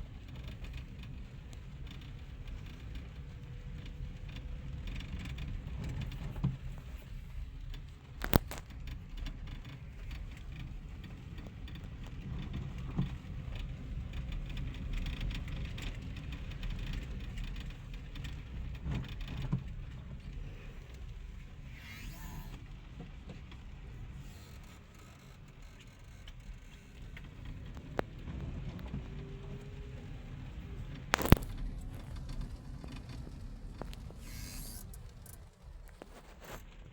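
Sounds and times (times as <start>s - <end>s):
low rumble of road vehicles: 0.0s - 36.9s.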